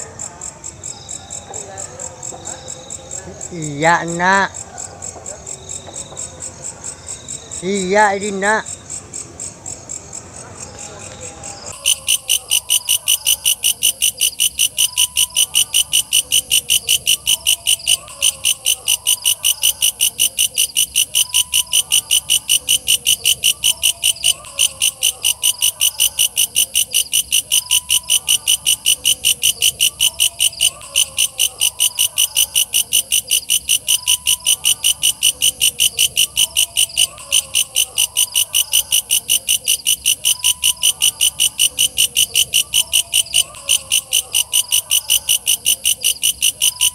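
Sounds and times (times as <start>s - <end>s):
bush cricket shrill pulsing call: 11.5s - 46.9s.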